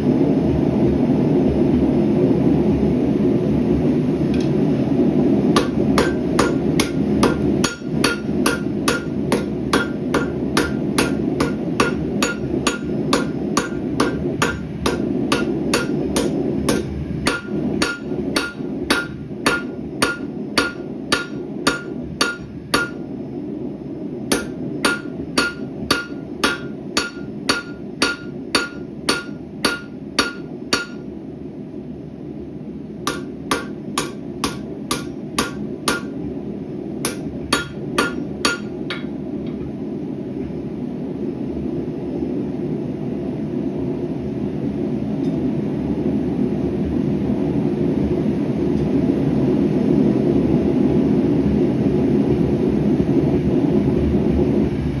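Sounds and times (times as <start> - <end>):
steady rushing noise: 0.0 - 42.6
hammer striking hot steel on anvil: 5.5 - 23.1, 24.3 - 31.1, 33.1 - 36.2, 37.0 - 39.7.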